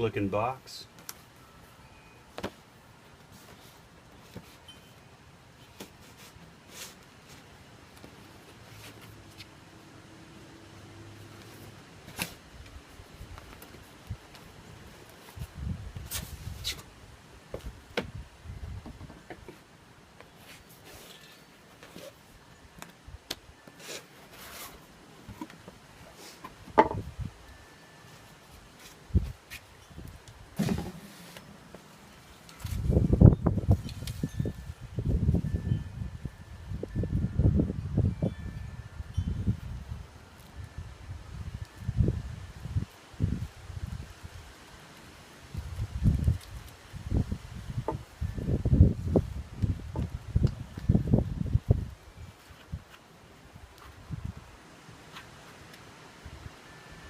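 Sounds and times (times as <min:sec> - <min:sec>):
cardboard rustle: 0:23.7 - 0:26.5.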